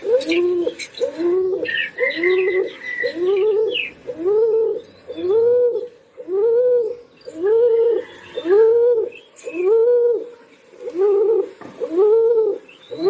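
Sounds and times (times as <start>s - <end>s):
pigeon cooing: 0.0s - 13.0s.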